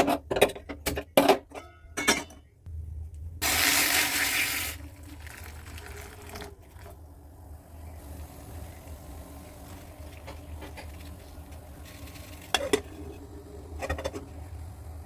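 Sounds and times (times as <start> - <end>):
pan and utensils clattering: 0.0 - 2.4, 9.9 - 14.4
water running: 3.4 - 13.7.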